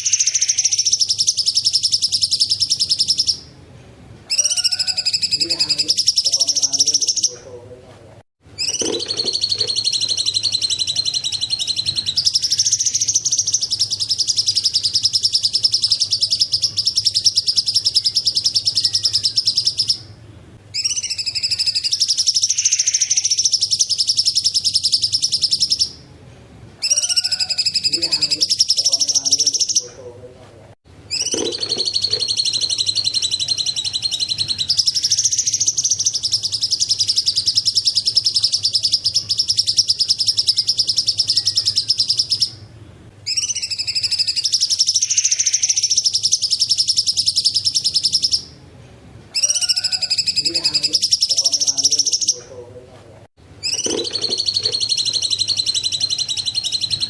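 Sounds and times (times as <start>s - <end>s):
bird trilling song: 0.0s - 3.5s, 4.3s - 7.6s, 8.6s - 26.1s, 26.8s - 30.0s, 31.1s - 48.6s, 49.3s - 52.6s, 53.6s - 57.0s.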